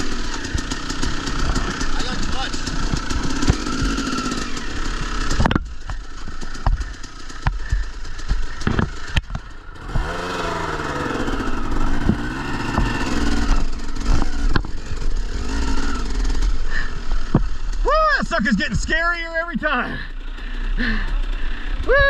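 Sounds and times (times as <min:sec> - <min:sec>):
motorcycle engine revving: 0:00.0 - 0:22.0
sharp knocks and clatter: 0:00.3 - 0:04.4, 0:05.2 - 0:10.4, 0:11.9 - 0:13.4, 0:14.0 - 0:14.8.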